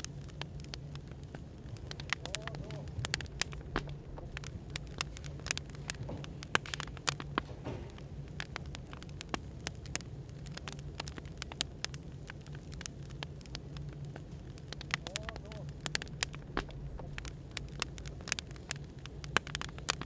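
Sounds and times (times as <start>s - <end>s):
low background hum: 0.0s - 20.0s
wood fire crackling: 0.0s - 20.0s
sharp pops: 0.2s - 13.6s.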